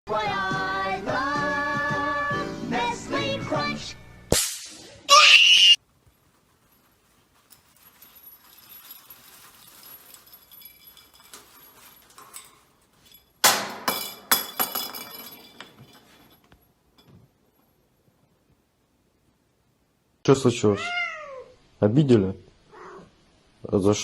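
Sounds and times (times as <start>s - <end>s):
small hard objects clinking: 6.0s - 16.6s
sharp knocks and clatter: 11.3s - 17.3s.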